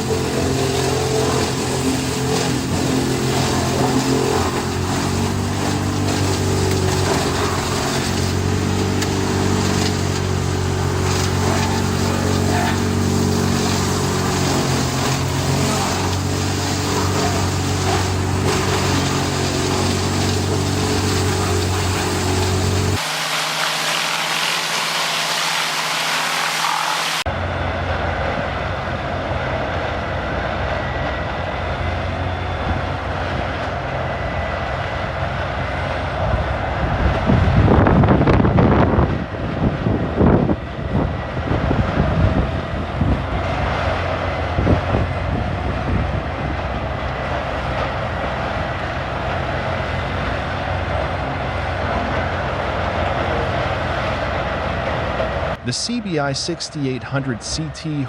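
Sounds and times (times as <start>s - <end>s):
hissing machine: 0.0s - 27.2s
wood chipper grinding wood: 0.0s - 56.0s.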